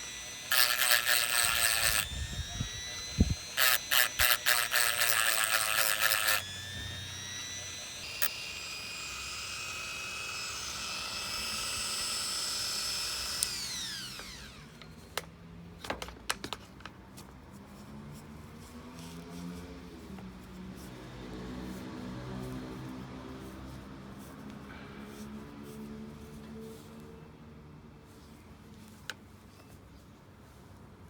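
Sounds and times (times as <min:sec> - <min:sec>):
electric drill whining: 0:00.0 - 0:15.0.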